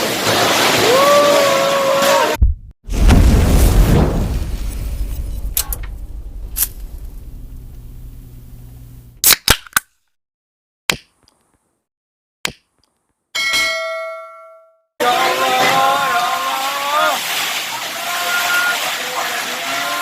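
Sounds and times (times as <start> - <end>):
heavy rain: 0.0 - 8.6, 15.0 - 20.0
metallic ding: 13.4 - 14.8.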